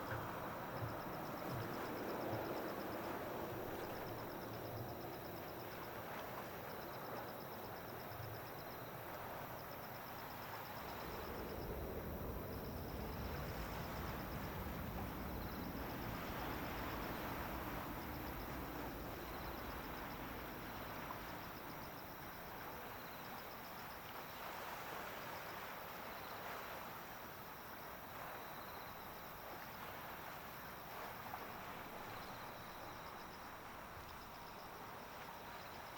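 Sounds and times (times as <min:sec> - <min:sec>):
insects trilling: 0:00.0 - 0:24.5
jet airliner rumble: 0:10.7 - 0:21.9.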